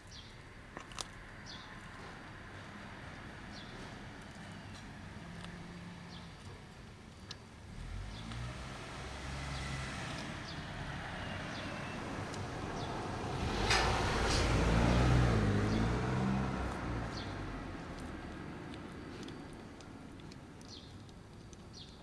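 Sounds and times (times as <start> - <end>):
vehicle engine passing by: 7.7 - 20.4.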